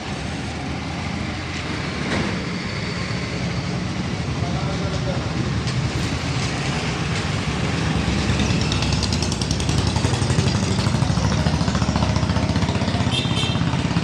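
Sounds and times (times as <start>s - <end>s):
engine chugging: 7.4s - 14.0s.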